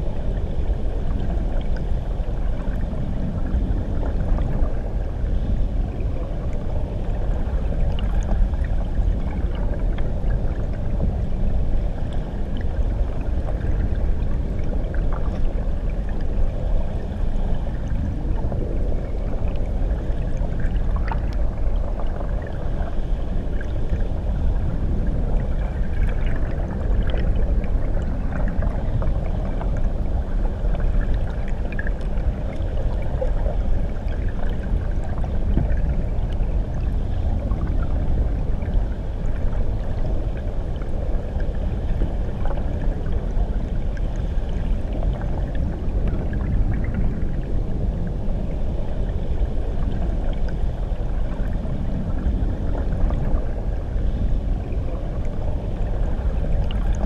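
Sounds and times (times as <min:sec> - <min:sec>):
muffled underwater water rumble: 0:00.0 - 0:57.0.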